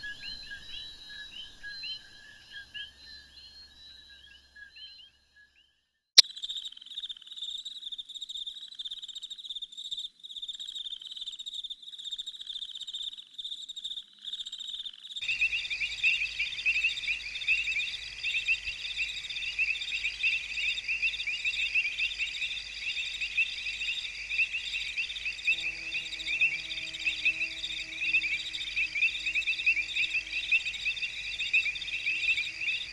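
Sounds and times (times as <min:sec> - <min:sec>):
crickets chirping: 0:00.0 - 0:03.8, 0:15.2 - 0:32.9
frogs: 0:00.0 - 0:05.2, 0:06.2 - 0:32.9.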